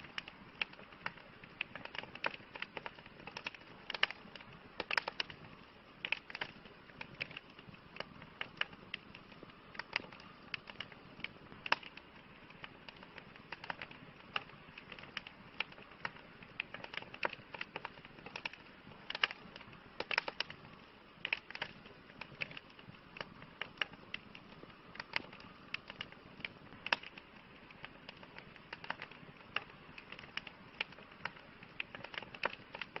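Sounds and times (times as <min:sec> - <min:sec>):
flames hissing: 0:00.0 - 0:33.0
wood crackling and popping: 0:00.0 - 0:33.0.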